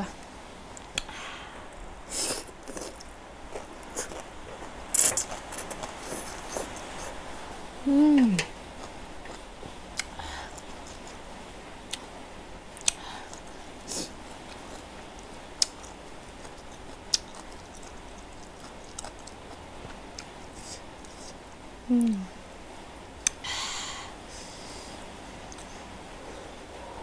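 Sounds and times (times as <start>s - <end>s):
steady hiss: 0.0s - 27.0s
chewing noodles: 2.2s - 7.2s, 12.8s - 21.4s.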